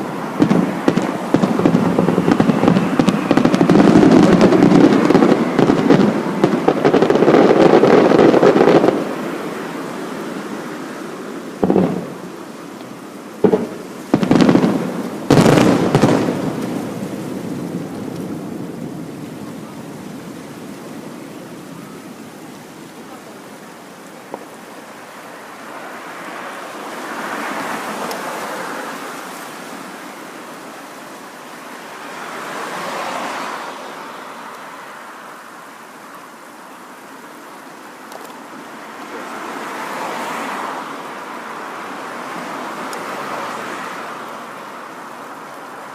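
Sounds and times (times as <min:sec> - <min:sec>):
fireworks booming: 0:00.0 - 0:10.4, 0:11.0 - 0:19.8.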